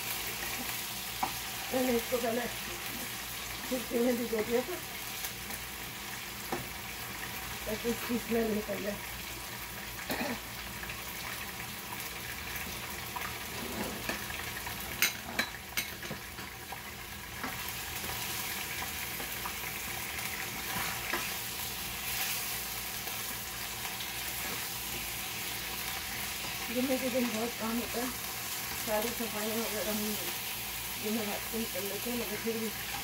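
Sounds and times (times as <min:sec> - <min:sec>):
chicken sizzling in oil: 0:00.0 - 0:33.0.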